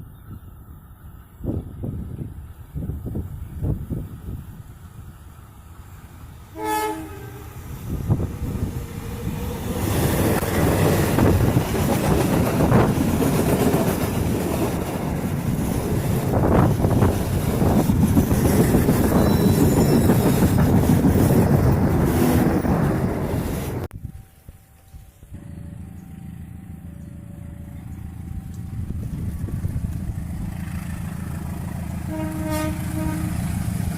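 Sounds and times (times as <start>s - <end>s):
train rumbling past: 0.0s - 33.9s
locomotive horn blast: 6.5s - 7.9s, 32.0s - 33.6s
wheels clacking over rail joints: 8.1s - 23.9s.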